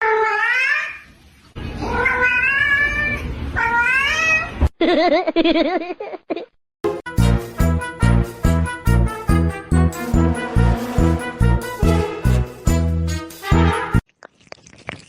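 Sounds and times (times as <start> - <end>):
cat meowing: 1.8 - 4.6
music with steady beat: 6.9 - 14.0.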